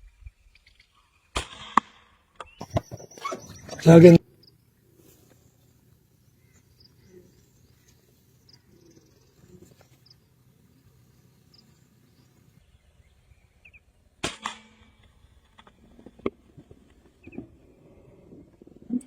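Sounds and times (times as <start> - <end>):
faint bird chirps: 2.4 - 10.3
air rifle shot: 14.2 - 14.8.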